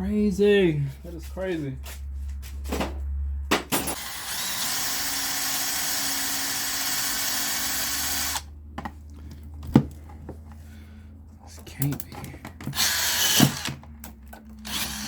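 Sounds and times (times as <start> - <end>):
handheld power tool running: 4.0 - 8.5, 12.7 - 13.8, 14.6 - 15.0.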